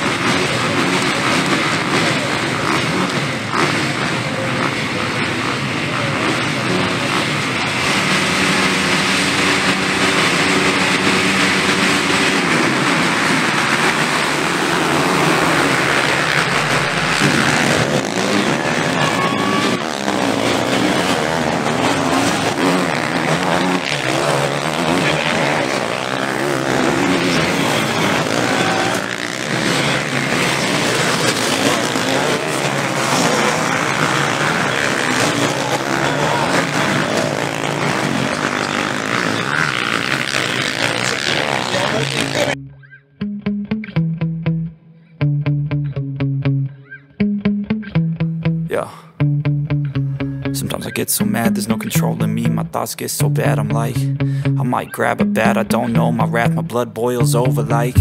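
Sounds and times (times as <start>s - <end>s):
motocross bike engines revving: 0.0s - 42.6s.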